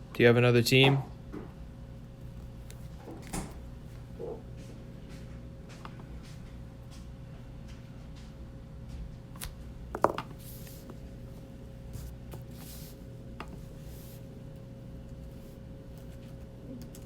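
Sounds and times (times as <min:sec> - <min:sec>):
low electrical hum: 0:00.0 - 0:17.0
soft rustles: 0:10.3 - 0:14.4.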